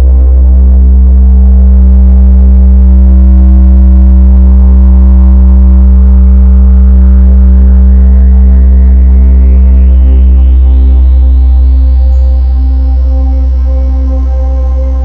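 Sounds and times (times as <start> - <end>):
deep drone hum: 0.0 - 15.0
sustained high tones: 9.0 - 15.0.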